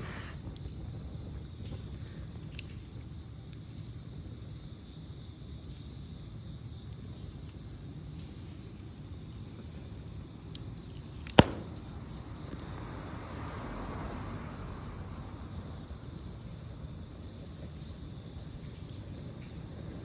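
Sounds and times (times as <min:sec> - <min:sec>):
campfire low rumble: 0:00.0 - 0:20.0
fire crackles: 0:00.0 - 0:20.0
rushing hiss of flame: 0:00.0 - 0:20.0
loud sharp pop: 0:11.2 - 0:12.7.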